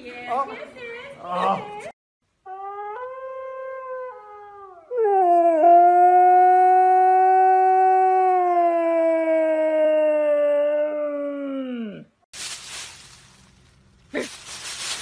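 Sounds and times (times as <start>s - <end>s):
howl from phone speaker: 2.5s - 12.0s
husky howling: 2.5s - 12.0s.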